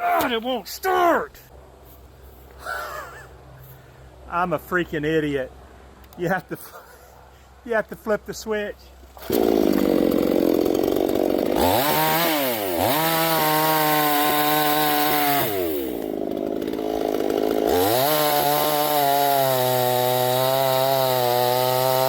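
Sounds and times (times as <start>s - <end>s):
chainsaw idling and revving: 9.2s - 22.0s.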